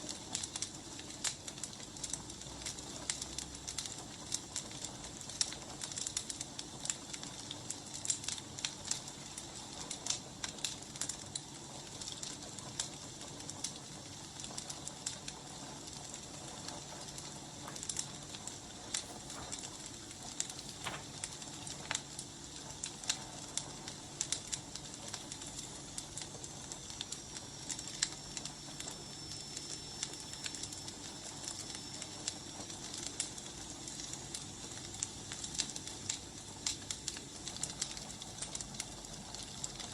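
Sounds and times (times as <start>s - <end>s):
firewood crackling and popping: 0.0s - 39.9s
steady hiss: 13.4s - 39.9s.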